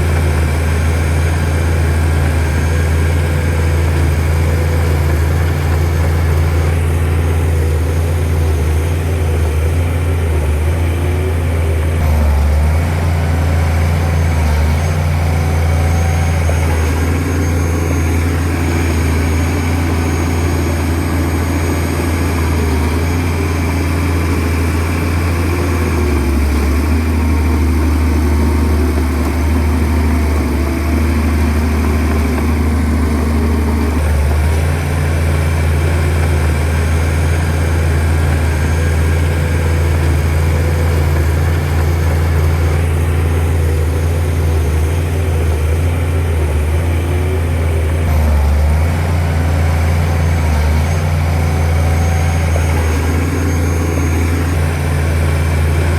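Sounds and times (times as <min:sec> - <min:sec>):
bulldozer diesel engine droning: 0:00.0 - 0:55.9.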